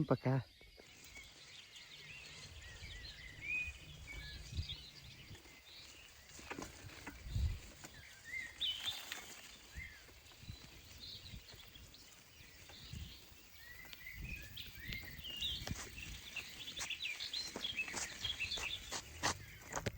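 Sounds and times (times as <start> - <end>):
small songbirds chirping: 0.0 - 19.9.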